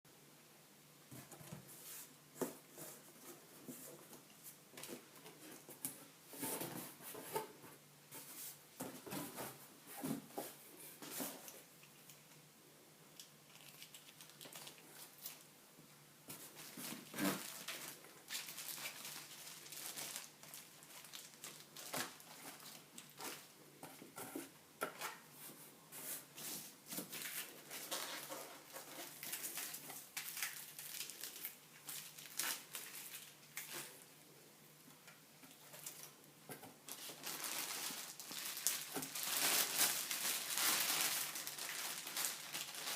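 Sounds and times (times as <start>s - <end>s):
packaging crinkling and tearing: 13.2s - 15.5s, 16.5s - 23.5s, 27.1s - 33.9s, 36.9s - 42.9s.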